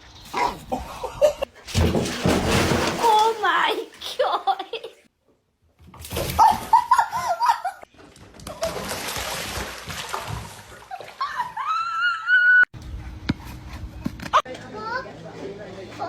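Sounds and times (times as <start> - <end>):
water splashing: 1.7 - 4.0, 8.4 - 11.6.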